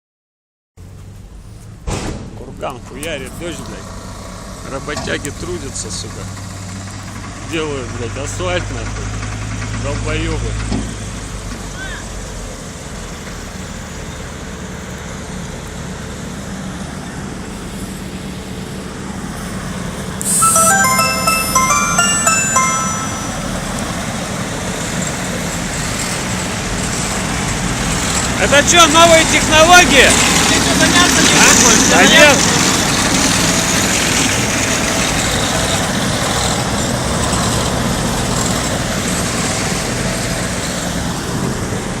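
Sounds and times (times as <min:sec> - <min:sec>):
vehicle engines rumbling: 0:02.5 - 0:12.6.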